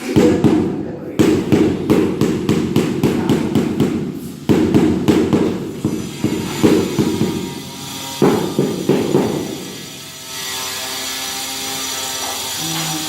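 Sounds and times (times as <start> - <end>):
trowel knocking and slapping mortar: 0.0 - 9.8.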